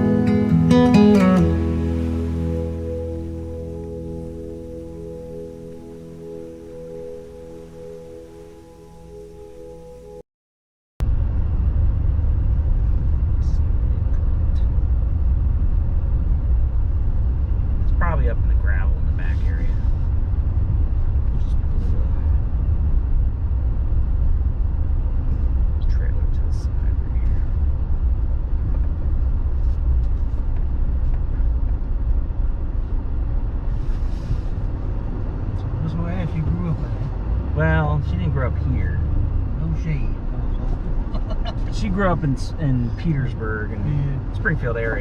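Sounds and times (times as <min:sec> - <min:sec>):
road vehicle rumble: 0:00.0 - 0:10.2, 0:11.0 - 0:45.0.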